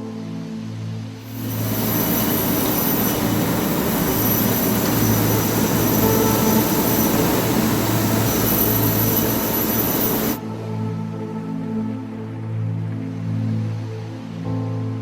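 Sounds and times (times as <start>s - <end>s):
machinery running: 1.2s - 10.4s
low hum: 1.2s - 11.0s.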